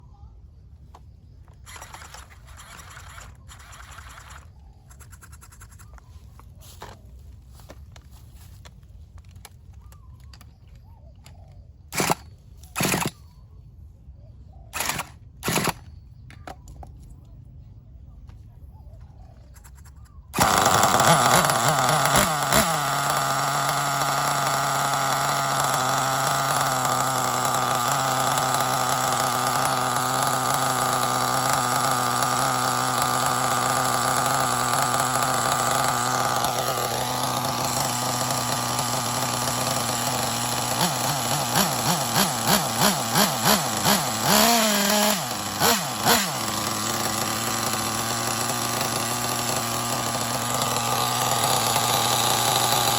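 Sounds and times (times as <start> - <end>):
model nitro engine running: 1.4 - 6.0, 12.0 - 13.2, 14.8 - 15.8, 19.5 - 52.9.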